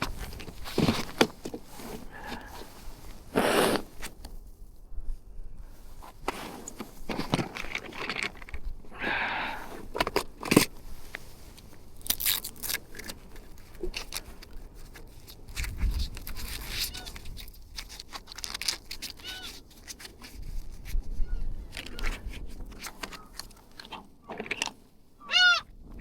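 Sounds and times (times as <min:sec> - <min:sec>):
gear being rummaged through: 0:00.0 - 0:02.8, 0:06.0 - 0:08.9, 0:09.8 - 0:21.0.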